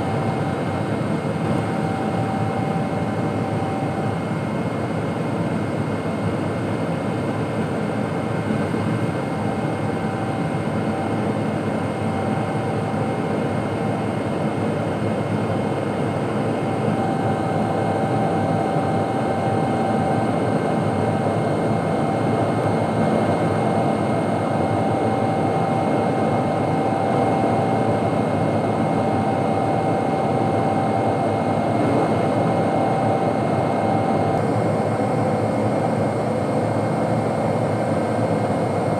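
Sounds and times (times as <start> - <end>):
jet engine rushing noise in cabin: 0.0 - 38.9.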